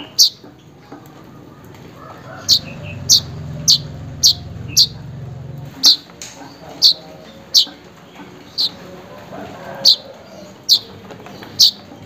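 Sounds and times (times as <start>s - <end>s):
bird chirping: 0.0s - 0.5s, 1.5s - 7.8s, 9.9s - 11.9s
low drone: 2.0s - 6.0s.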